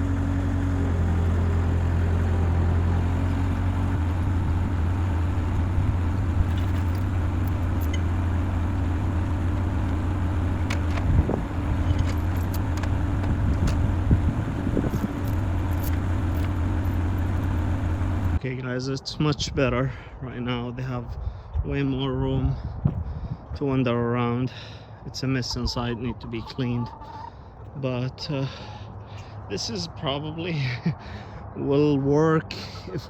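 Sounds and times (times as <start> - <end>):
skid steer engine running: 0.0 - 18.4.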